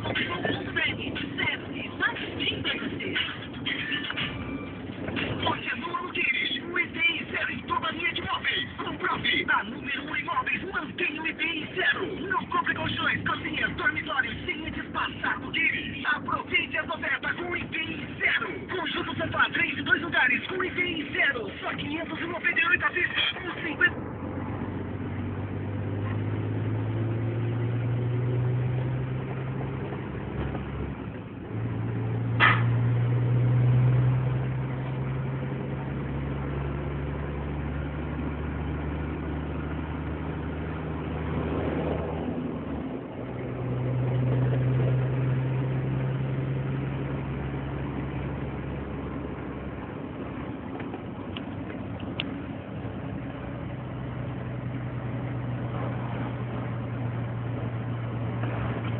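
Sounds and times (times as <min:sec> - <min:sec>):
diesel truck engine running: 0:00.0 - 0:58.9.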